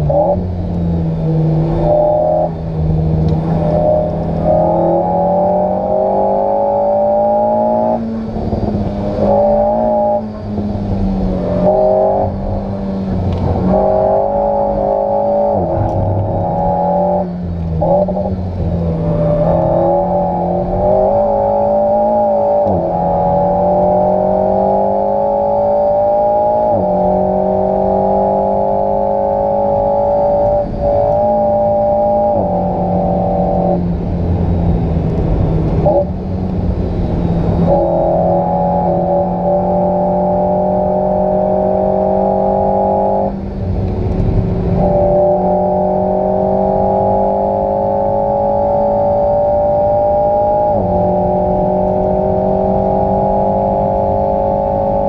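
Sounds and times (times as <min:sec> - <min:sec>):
car engine revving in cabin: 0:00.0 - 0:55.0.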